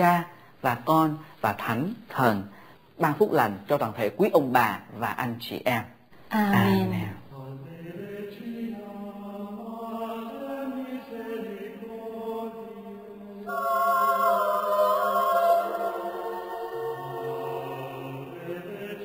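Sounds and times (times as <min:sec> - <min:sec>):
slow singing with held notes: 0:06.4 - 0:19.0.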